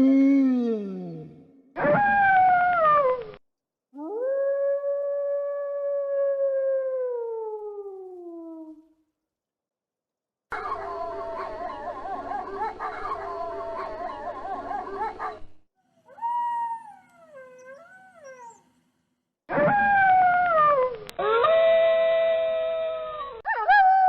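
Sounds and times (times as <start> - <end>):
wolves howling: 10.5 - 15.5, 16.1 - 18.6.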